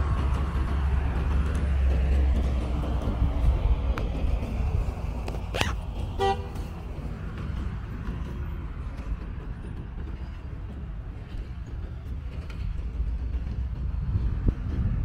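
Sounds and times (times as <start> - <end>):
street traffic rumble: 0.0 - 15.0
vehicle horn toot: 5.6 - 6.6.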